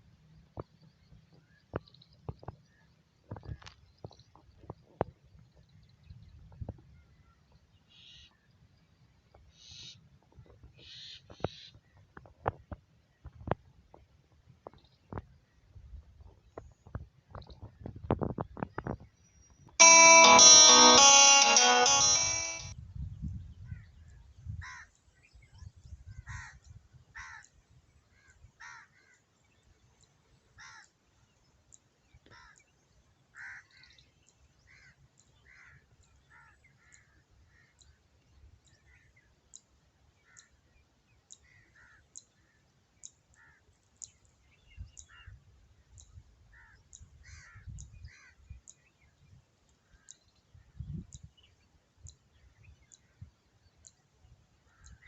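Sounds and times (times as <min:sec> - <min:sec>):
crows cawing: 0:27.2 - 0:27.5, 0:28.6 - 0:29.2, 0:30.6 - 0:30.9, 0:33.4 - 0:33.7.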